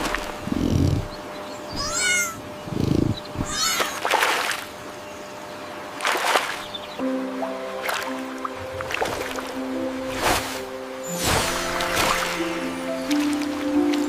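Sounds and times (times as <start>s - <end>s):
cat meowing: 1.8s - 2.4s, 3.4s - 4.0s.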